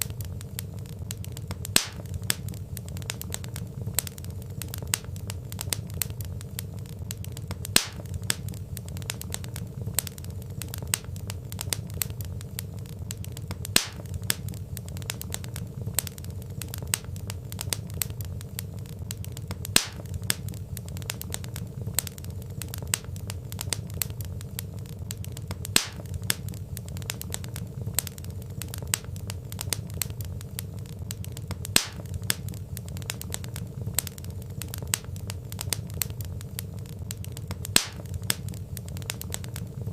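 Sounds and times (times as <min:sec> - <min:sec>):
wood fire crackling: 0:00.0 - 0:39.9
sharp loud fire pop: 0:01.8 - 0:02.1, 0:07.8 - 0:08.1, 0:13.8 - 0:14.1, 0:19.8 - 0:20.0, 0:25.8 - 0:26.0, 0:31.8 - 0:32.1, 0:37.8 - 0:38.0.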